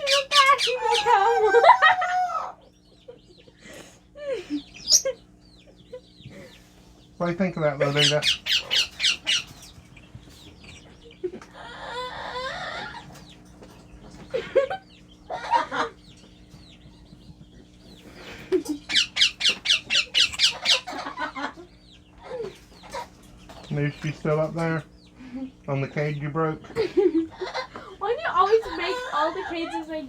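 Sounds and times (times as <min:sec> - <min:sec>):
parrots squawking: 0:00.0 - 0:02.7, 0:04.5 - 0:05.3, 0:07.4 - 0:13.3, 0:14.6 - 0:16.2, 0:18.0 - 0:23.3
parrots chattering: 0:00.0 - 0:30.0.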